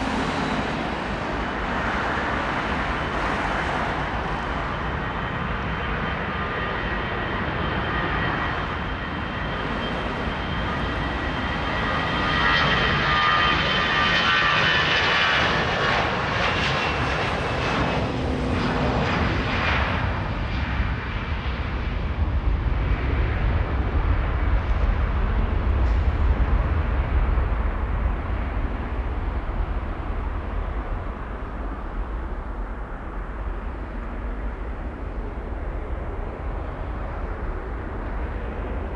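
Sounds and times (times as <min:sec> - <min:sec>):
jet engine whine and roar: 0:00.0 - 0:38.9
deep rumble: 0:22.5 - 0:38.9.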